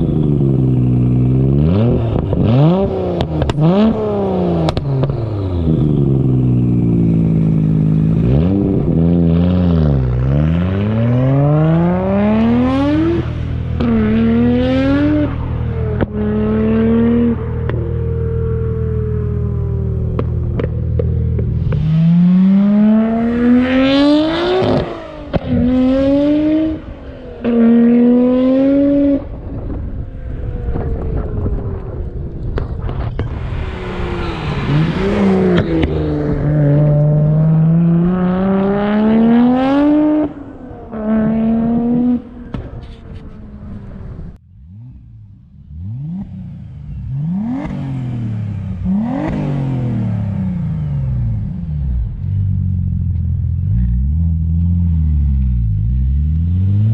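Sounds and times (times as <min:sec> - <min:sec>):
car engine revving through gears: 0:00.0 - 0:29.7, 0:32.9 - 0:56.9
engine rev blips: 0:30.4 - 0:42.8, 0:43.6 - 0:56.9.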